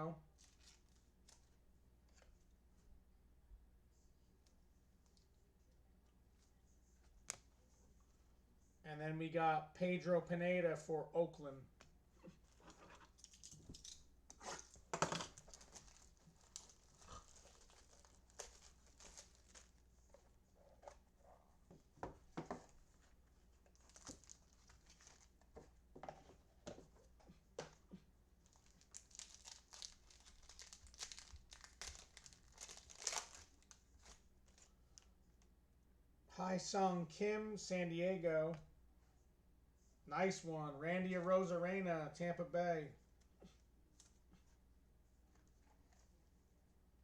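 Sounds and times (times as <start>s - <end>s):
card packs crinkling: 12.5s - 20.0s, 23.7s - 25.5s, 28.4s - 35.1s.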